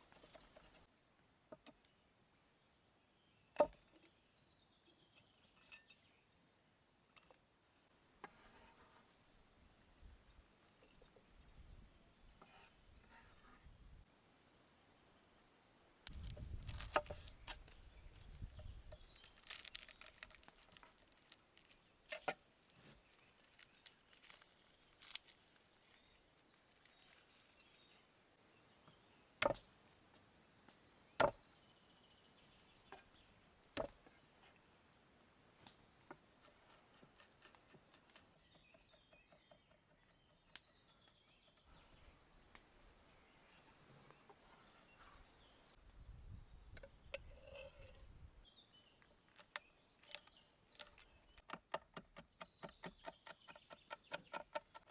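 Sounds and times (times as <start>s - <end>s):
rustling and crinkling: 16.1s - 28.0s.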